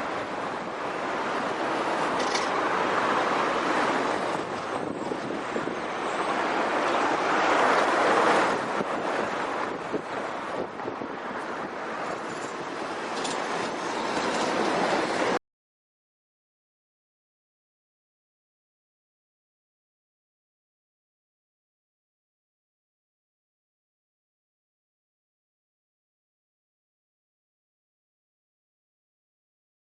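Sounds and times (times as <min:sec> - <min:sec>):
trucks driving past: 0:00.0 - 0:15.4
wind buffeting microphone: 0:00.0 - 0:15.4.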